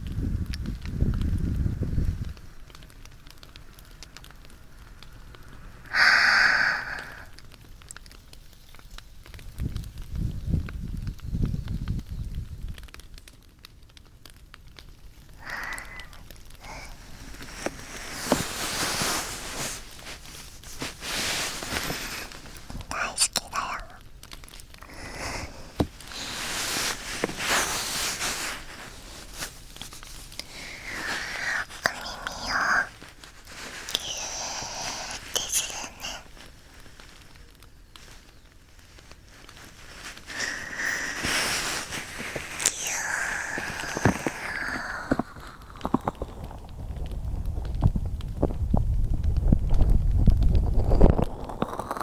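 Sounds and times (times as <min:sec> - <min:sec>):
bonfire crackling: 0:00.0 - 0:52.0
rustling on microphone: 0:05.3 - 0:52.0
person exhaling: 0:05.9 - 0:07.3, 0:15.4 - 0:20.2, 0:24.8 - 0:28.4, 0:40.2 - 0:45.7.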